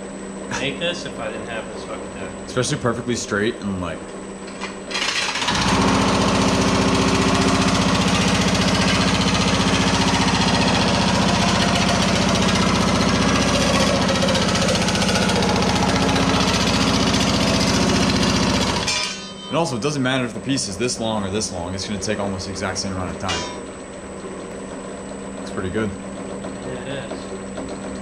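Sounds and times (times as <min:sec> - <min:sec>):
sheet-metal machine hammering: 0:05.0 - 0:20.0, 0:22.7 - 0:23.8.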